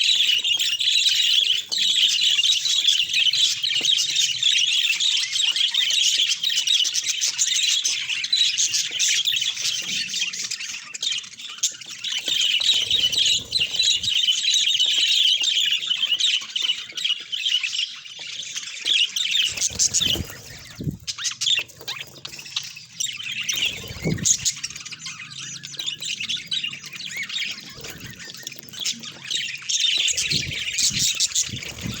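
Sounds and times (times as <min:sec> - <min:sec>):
budgerigars chattering and chirping: 0:00.0 - 0:32.0.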